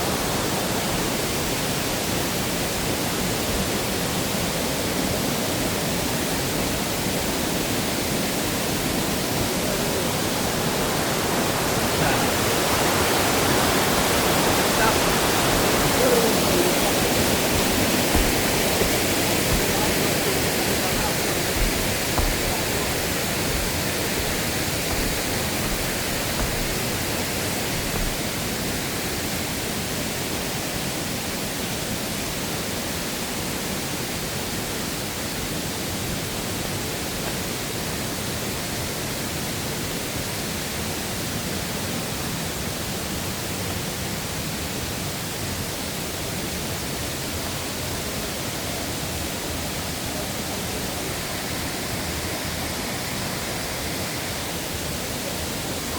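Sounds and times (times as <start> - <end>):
mountain stream rushing: 0.0 - 55.9.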